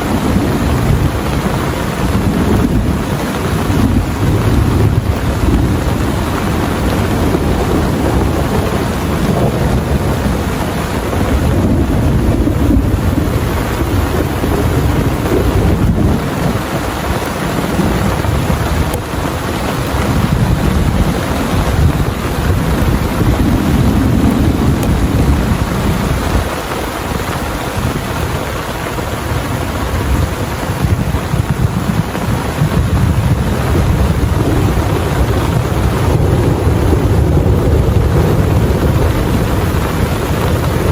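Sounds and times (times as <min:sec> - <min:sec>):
deep rumble: 0:00.0 - 0:28.4, 0:29.6 - 0:40.9
heavy rain pouring: 0:00.0 - 0:40.9.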